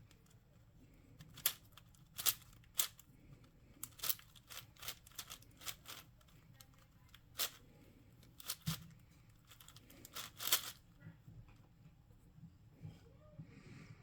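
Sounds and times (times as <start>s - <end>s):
puzzle cube turning clicks: 1.2s - 3.0s, 3.8s - 7.6s, 8.3s - 8.9s, 9.5s - 10.8s.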